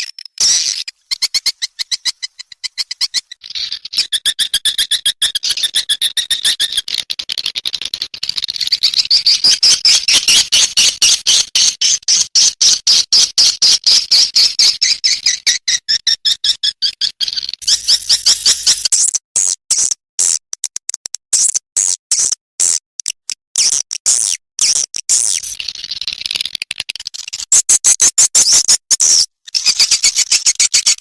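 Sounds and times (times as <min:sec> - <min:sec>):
swiftlet chirping chatter: 0:00.0 - 0:06.9, 0:17.2 - 0:18.9, 0:29.5 - 0:31.0.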